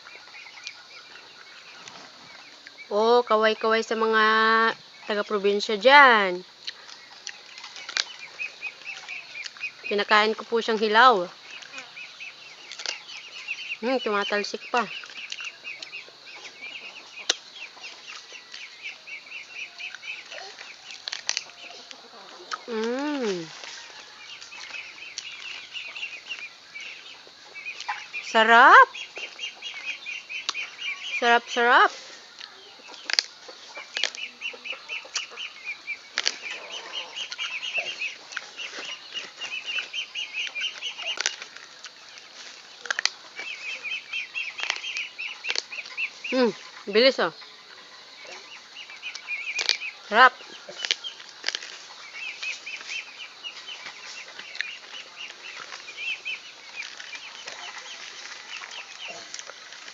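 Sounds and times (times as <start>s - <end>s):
chickens chirping: 0.0s - 59.9s
biting into raw corn: 20.0s - 21.9s, 40.4s - 43.6s, 44.4s - 46.1s, 49.1s - 49.9s, 50.7s - 53.0s
crunching bites into corn: 20.8s - 21.5s, 36.1s - 38.5s, 44.4s - 46.1s, 49.0s - 49.9s, 50.7s - 53.0s.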